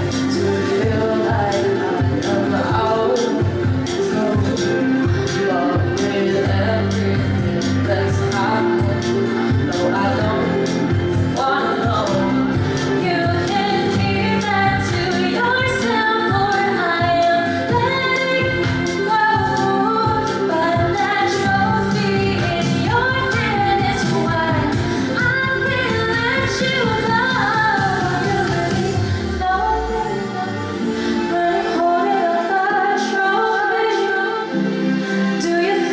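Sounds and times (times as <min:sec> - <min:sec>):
live pop band: 0:00.0 - 0:35.9
woman singing: 0:00.0 - 0:35.9.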